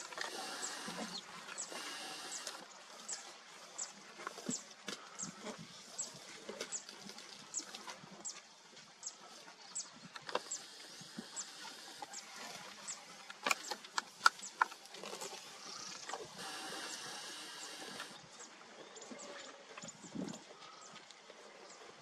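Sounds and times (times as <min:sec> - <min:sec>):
open-country ambience: 0:00.0 - 0:22.0
steady hiss: 0:16.4 - 0:18.2.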